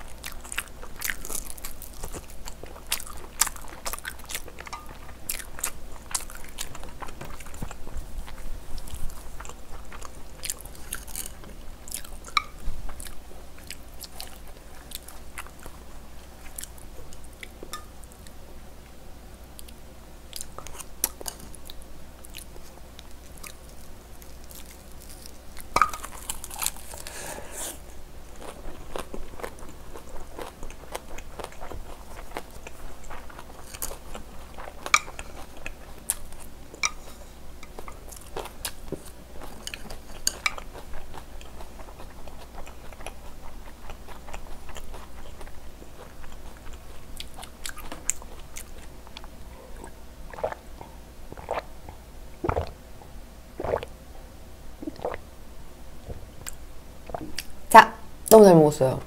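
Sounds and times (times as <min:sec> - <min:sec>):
person chewing and crunching food: 0:00.0 - 0:18.4, 0:19.6 - 0:54.0, 0:54.8 - 0:55.3, 0:56.0 - 0:57.6
wet mouth clicks: 0:53.6 - 0:53.9.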